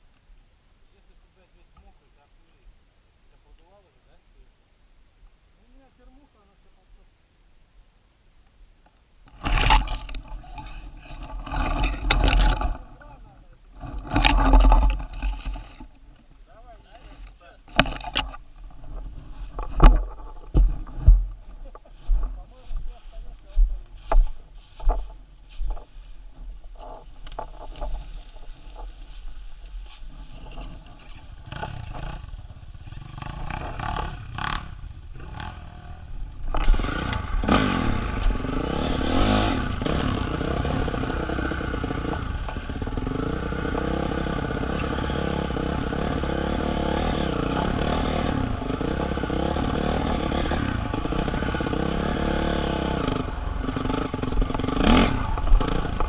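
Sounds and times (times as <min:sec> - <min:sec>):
small vehicle engine revving: 0:29.8 - 0:56.0.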